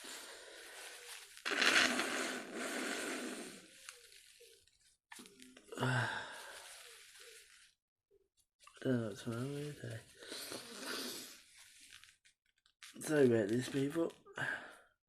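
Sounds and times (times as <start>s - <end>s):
person sighing: 5.7s - 6.8s.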